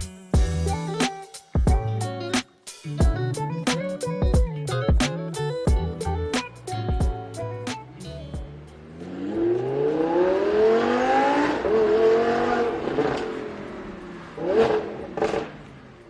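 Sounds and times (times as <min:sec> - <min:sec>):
sports car engine revving: 0:08.5 - 0:16.0.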